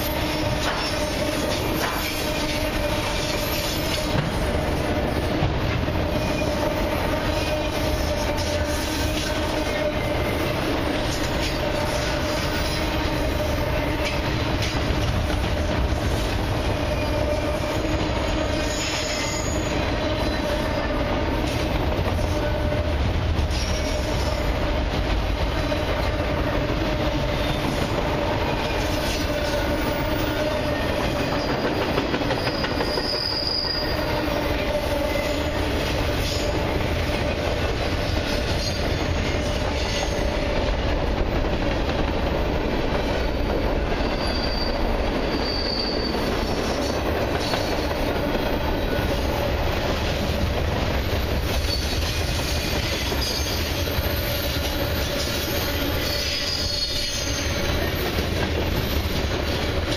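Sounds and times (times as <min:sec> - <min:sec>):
clickety-clack over rail joints: 0:00.0 - 0:59.9
rumble of steel wheels on rail: 0:00.0 - 0:59.9
high wheel squeals: 0:16.8 - 0:21.0, 0:28.5 - 0:36.5, 0:44.0 - 0:49.2, 0:51.6 - 0:59.6.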